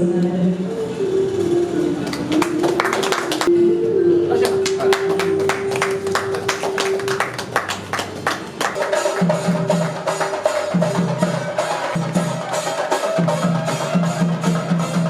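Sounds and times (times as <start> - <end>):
rapid rhythmic drum strokes: 5.0 - 15.0.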